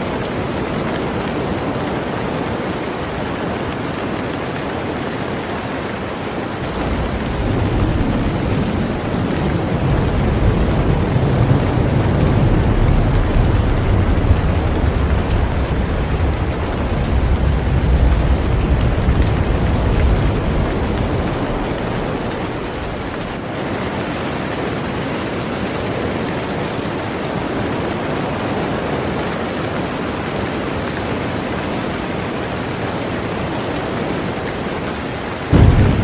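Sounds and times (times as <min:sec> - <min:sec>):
heavy rain on a boat: 0:00.0 - 0:36.0
deep low rumble: 0:06.6 - 0:23.4, 0:35.5 - 0:36.0.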